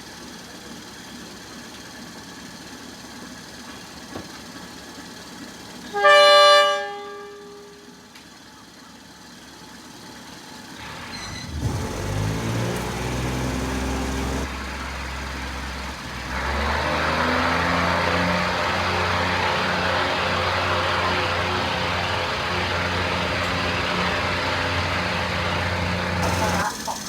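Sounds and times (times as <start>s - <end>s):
diesel railcar engine revving: 0.0s - 27.0s
train wheels on rails: 18.3s - 27.0s.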